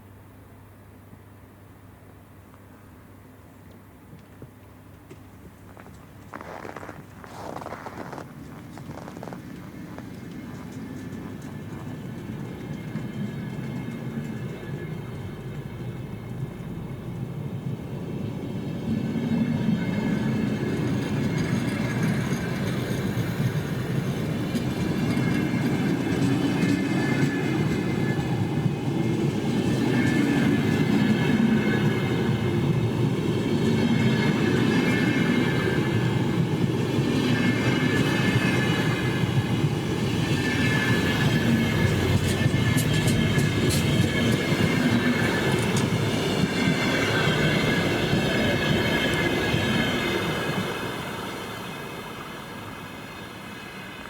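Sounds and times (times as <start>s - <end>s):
train wagons rumbling on rails: 3.7s - 54.0s
rail clatter: 8.2s - 16.6s, 37.4s - 51.2s.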